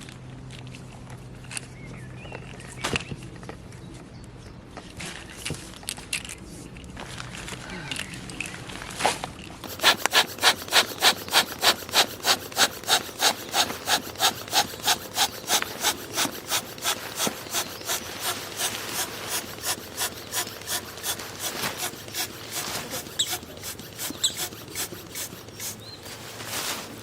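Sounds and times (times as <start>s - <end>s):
hand saw cutting wood: 9.6s - 27.0s.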